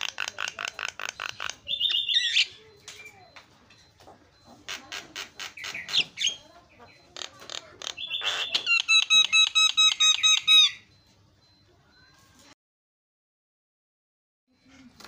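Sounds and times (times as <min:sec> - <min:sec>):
myna harsh chattering calls: 0:00.0 - 0:02.6, 0:04.3 - 0:10.8.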